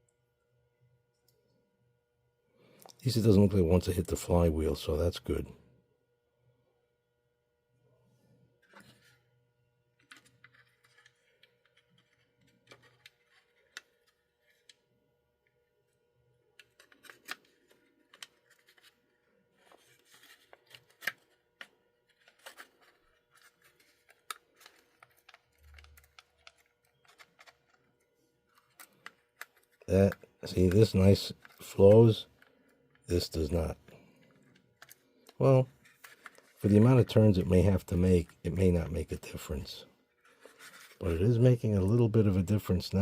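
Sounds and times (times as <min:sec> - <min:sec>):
faint steady hum: 0:00.0 - 0:43.0
small parts clicking and tapping: 0:10.0 - 0:14.8, 0:19.6 - 0:33.1.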